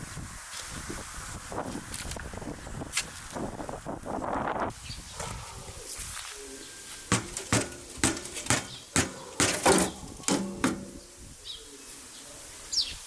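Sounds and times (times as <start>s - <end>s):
bird chirping: 6.4s - 13.0s
firewood pieces knocking hollowly: 7.1s - 11.0s.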